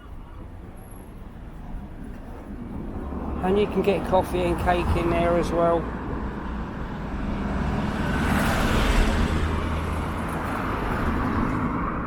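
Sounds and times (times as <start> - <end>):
low rumble of street traffic: 0.0 - 12.0
car passing by: 2.6 - 12.0.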